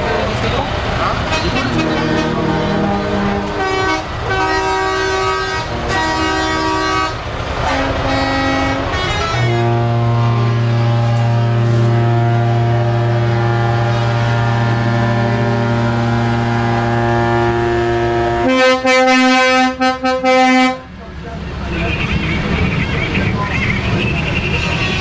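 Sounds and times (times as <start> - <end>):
higher horn short blasts: 1.3 - 20.9
truck air horn chord: 1.3 - 20.9.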